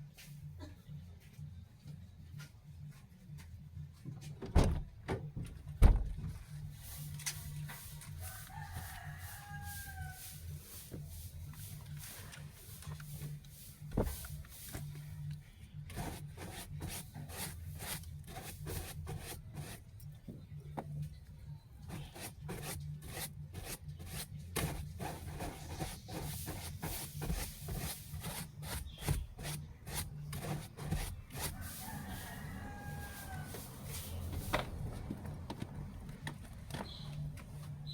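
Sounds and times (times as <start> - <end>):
rubbing and scrubbing strokes: 6.6 - 15.2, 15.9 - 19.9, 21.8 - 34.8.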